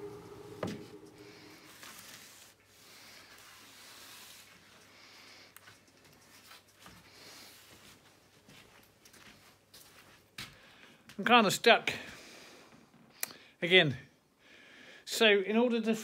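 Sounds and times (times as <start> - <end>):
steady hum: 0.0 - 2.0.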